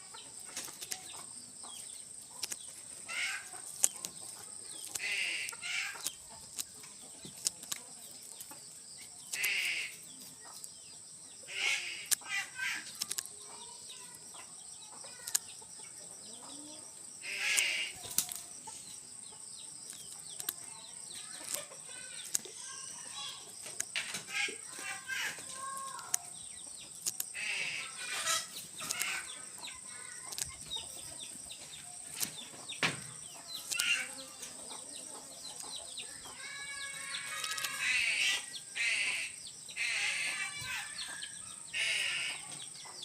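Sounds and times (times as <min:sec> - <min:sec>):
sharp clicks: 0:00.4 - 0:01.2, 0:02.2 - 0:08.6, 0:09.2 - 0:10.8, 0:12.0 - 0:14.2, 0:15.1 - 0:15.6, 0:17.2 - 0:18.6, 0:19.8 - 0:31.0, 0:31.7 - 0:34.5, 0:36.8 - 0:38.0.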